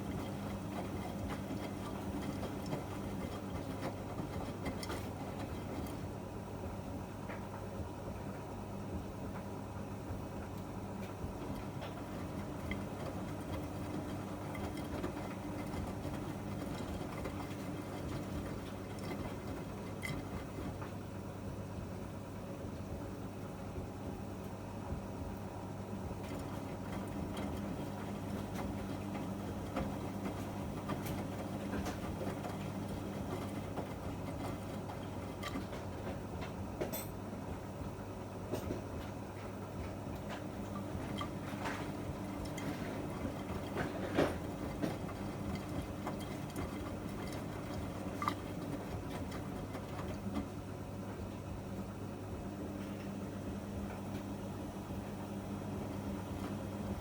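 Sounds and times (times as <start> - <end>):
washing machine motor hum: 0.0 - 57.0.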